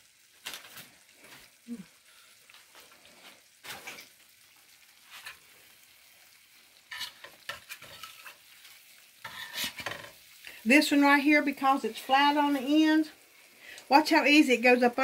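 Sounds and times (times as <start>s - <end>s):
faint frying sizzle: 0.0s - 15.0s
metal spoon scraping a pan: 5.0s - 5.5s, 6.8s - 10.5s.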